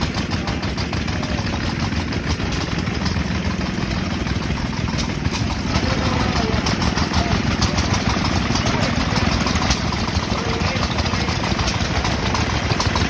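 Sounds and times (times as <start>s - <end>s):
stationary gas engines running: 0.0s - 13.0s.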